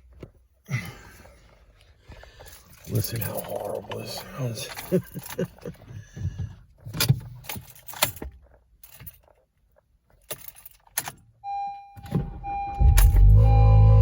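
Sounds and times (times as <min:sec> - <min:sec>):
car keys jangling in ignition: 0:02.5 - 0:05.9, 0:06.8 - 0:13.4
steady electronic tone: 0:12.5 - 0:14.0.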